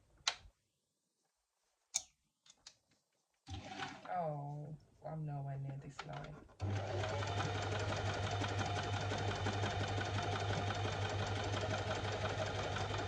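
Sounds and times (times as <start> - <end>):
sewing machine motor hum: 6.6 - 13.0.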